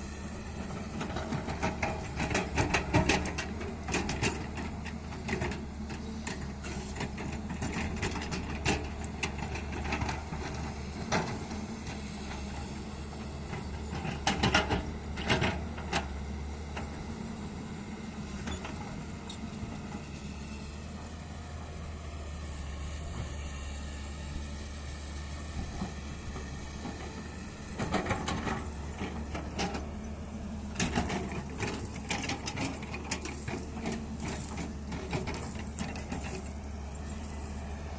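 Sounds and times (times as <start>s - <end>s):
excavator diesel engine running: 0.0s - 37.9s
metal clanks and knocks: 30.7s - 36.6s.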